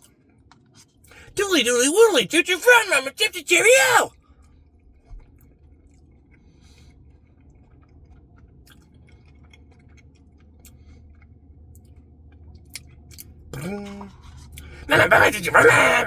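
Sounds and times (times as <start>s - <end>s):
person chewing: 7.4s - 11.4s
wet mouth clicks and smacks: 7.4s - 12.0s, 12.6s - 13.3s.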